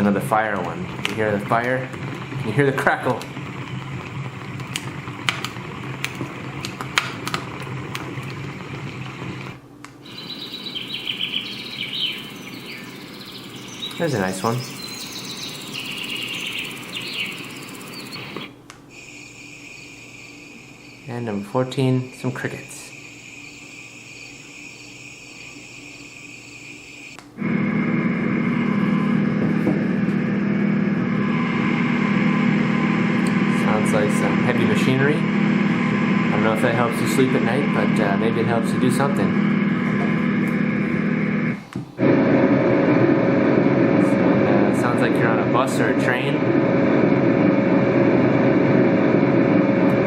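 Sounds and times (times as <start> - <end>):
birds chirping: 0.0 - 27.2, 31.1 - 41.6
fire crackling over hiss: 0.0 - 27.8, 29.6 - 50.0
recorded cricket chirping: 10.0 - 27.2
steady low rumble: 27.4 - 50.0.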